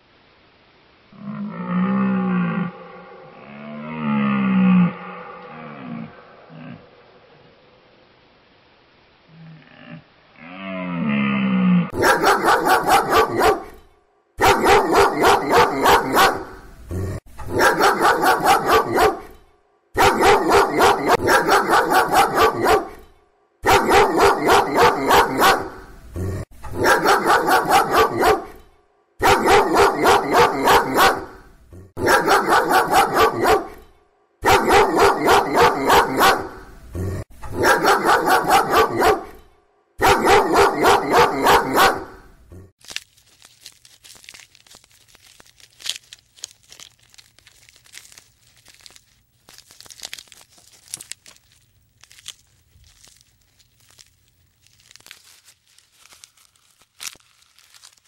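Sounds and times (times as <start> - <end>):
dog barking: 12.0 - 13.8, 14.4 - 16.6, 17.5 - 19.4, 20.0 - 23.0, 23.6 - 25.9, 26.7 - 28.6, 29.2 - 36.7, 37.5 - 42.3.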